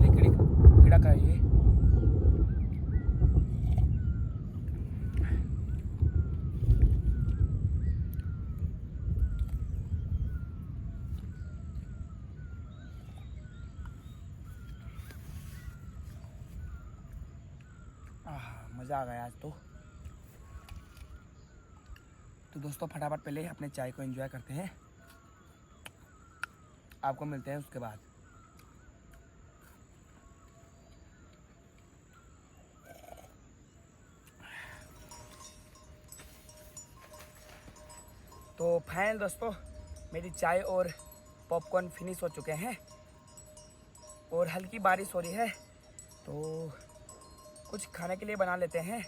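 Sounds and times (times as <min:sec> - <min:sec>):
rolling thunder rumble: 0:00.0 - 0:18.0
faint bird chirping: 0:00.0 - 0:49.0.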